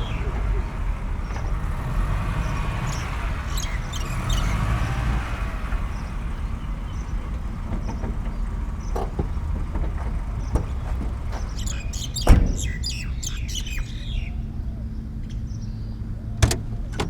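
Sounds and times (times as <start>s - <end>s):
vehicle engine running: 0.0s - 16.9s
bird chirps: 2.4s - 5.3s, 11.4s - 16.0s.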